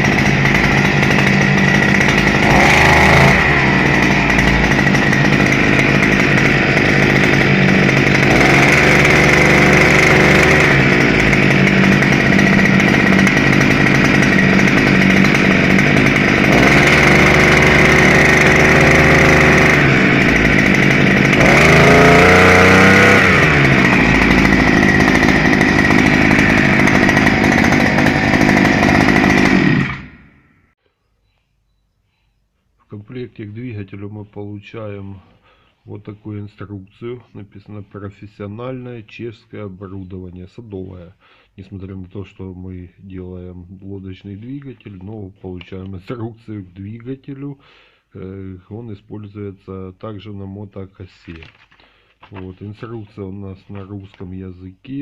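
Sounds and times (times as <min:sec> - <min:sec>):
small two-stroke engine running: 0:00.0 - 0:30.7.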